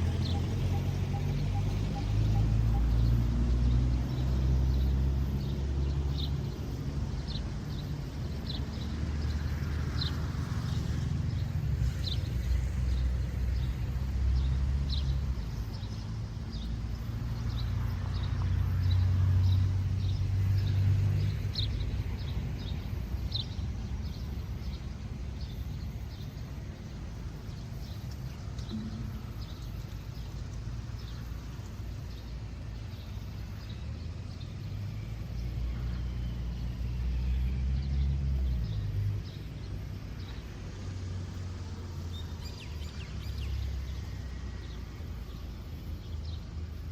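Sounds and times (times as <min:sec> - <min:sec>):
steady low rumble: 0:00.0 - 0:37.2.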